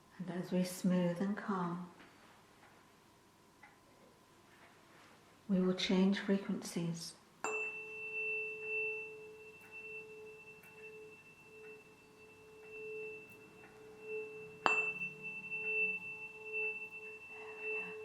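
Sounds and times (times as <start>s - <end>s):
tuning fork ringing: 7.4s - 18.0s.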